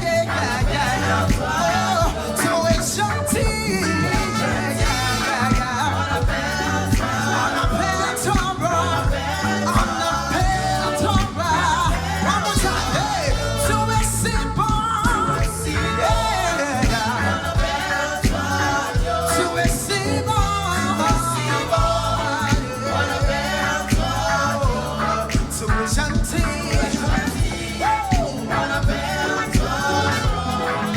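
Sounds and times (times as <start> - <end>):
band with bass and drums: 0.0 - 30.9
gospel singers: 0.0 - 30.9.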